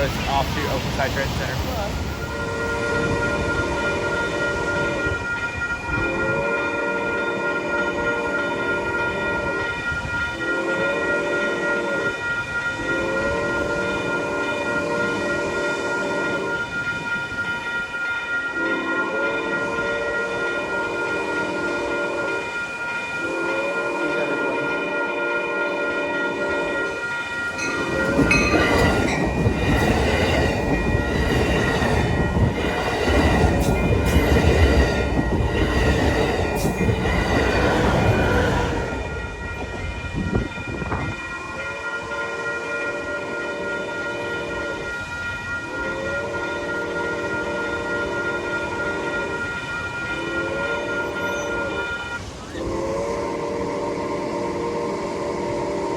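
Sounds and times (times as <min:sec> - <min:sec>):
train chord horn blasts: 0:02.2 - 0:55.9
thin steady squeal: 0:26.2 - 0:42.2, 0:42.8 - 0:55.9.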